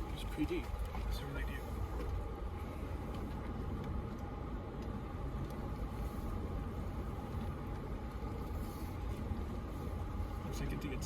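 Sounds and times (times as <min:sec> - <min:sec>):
vehicle engine rumbling: 0:00.0 - 0:11.0
light ticks: 0:03.0 - 0:05.7.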